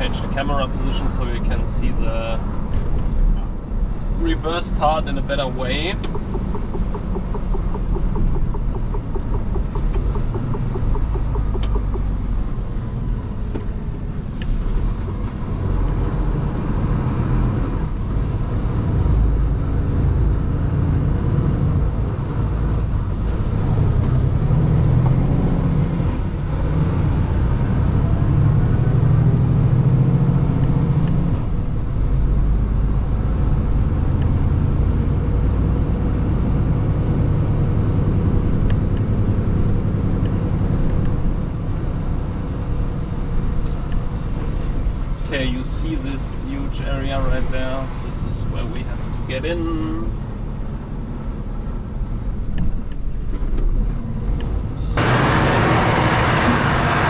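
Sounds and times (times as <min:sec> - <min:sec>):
truck diesel engine driving: 0:00.0 - 0:57.0
sharp clicks: 0:06.0 - 0:12.2.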